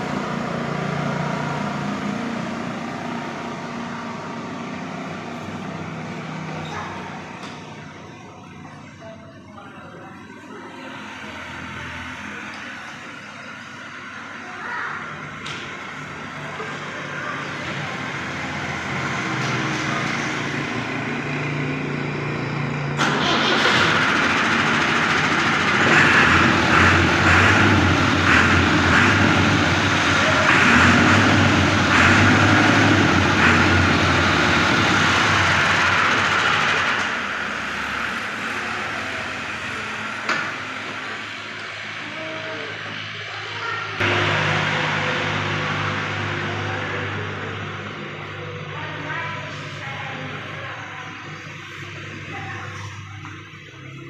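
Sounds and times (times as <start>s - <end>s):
tractor engine running: 15.2s - 42.2s, 44.0s - 54.0s.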